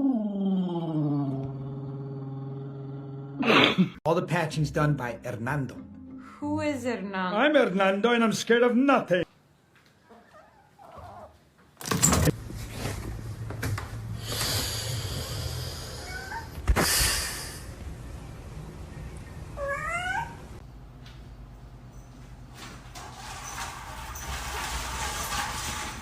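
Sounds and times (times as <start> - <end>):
cat meowing: 19.6 - 20.5.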